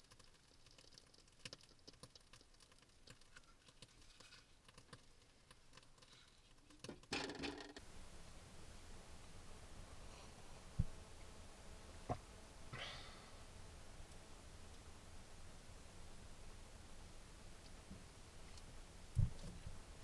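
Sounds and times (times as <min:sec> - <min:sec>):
faint small clicks and taps: 0:00.0 - 0:07.1
faint steady hiss: 0:00.0 - 0:20.0.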